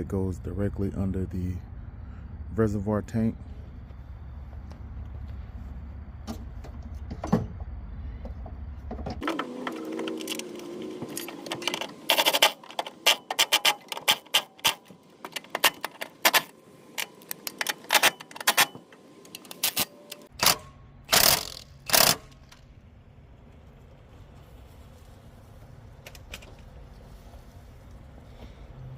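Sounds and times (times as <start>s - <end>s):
low hum: 0.0s - 28.9s
ratchet wrench clicking: 19.6s - 22.6s.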